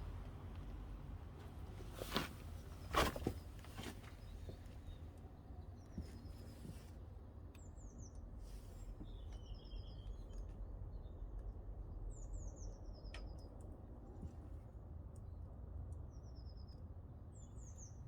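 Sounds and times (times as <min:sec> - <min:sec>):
songbirds chirping: 0:07.5 - 0:11.4.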